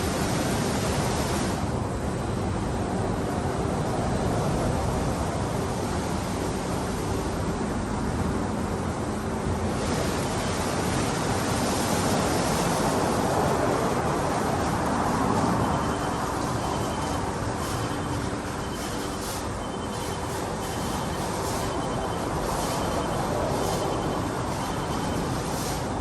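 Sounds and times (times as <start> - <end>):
car wash water spray and machinery: 0.0 - 26.0
faint beeping: 15.2 - 26.0.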